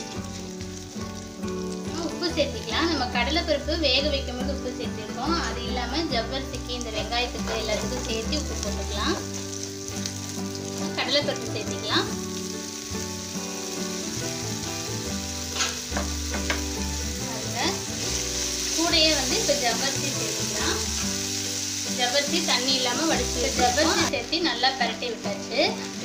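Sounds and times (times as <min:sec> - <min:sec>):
onions sizzling in oil: 0:00.0 - 0:26.0
spoon stirring and scraping pan: 0:15.3 - 0:16.8.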